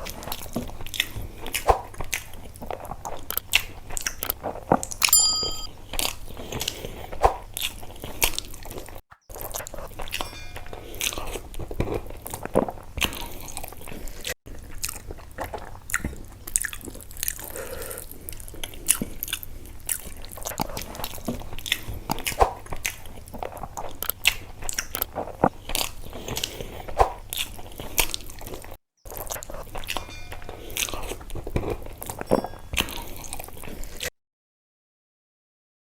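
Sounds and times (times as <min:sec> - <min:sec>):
person chewing and crunching food: 0:06.0 - 0:34.1.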